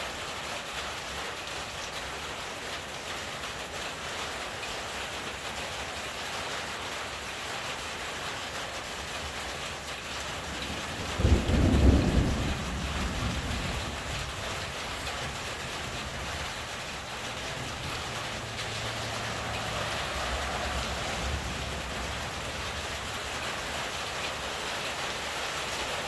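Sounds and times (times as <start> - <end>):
steady rain: 0.0 - 26.0
thunder clap rumbling: 10.4 - 25.8.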